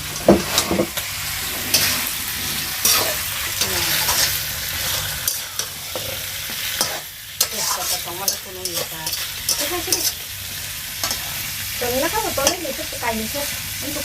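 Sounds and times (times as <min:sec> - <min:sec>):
food sizzling in hot oil: 0:00.0 - 0:14.0
utensil scraping and knocking pot: 0:02.8 - 0:10.2.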